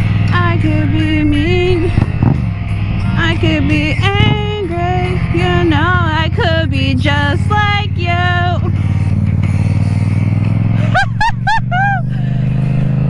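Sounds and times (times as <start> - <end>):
pop song through a speaker: 0.0 - 10.6
motorcycle engine idling: 0.0 - 13.0.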